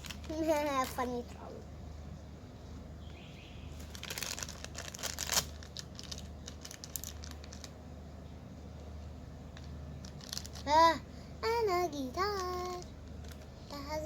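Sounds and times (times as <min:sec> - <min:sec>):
plastic packaging crinkling: 0:00.0 - 0:01.1, 0:03.7 - 0:07.8, 0:09.5 - 0:10.8, 0:12.2 - 0:13.5.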